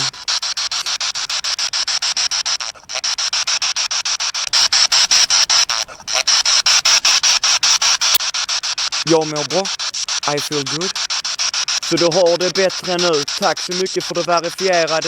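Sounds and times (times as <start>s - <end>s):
pulsing radio static: 0.0s - 0.3s, 4.4s - 15.0s.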